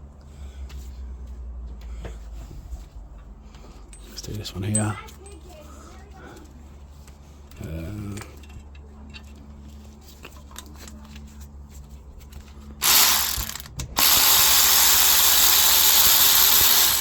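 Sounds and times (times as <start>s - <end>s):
socket ratchet ratcheting: 12.8s - 17.0s.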